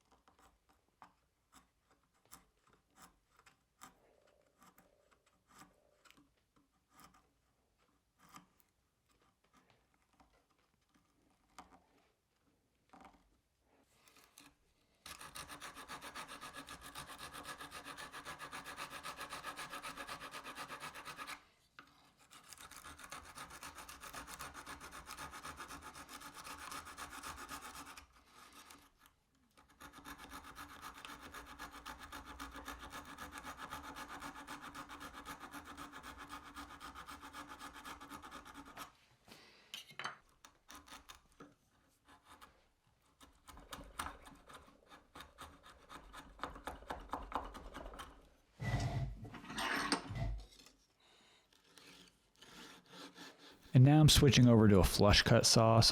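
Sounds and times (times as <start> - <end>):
hand tool rasping wood: 15.1 - 21.4, 22.2 - 29.0, 29.6 - 38.9, 43.2 - 49.2, 51.5 - 53.6.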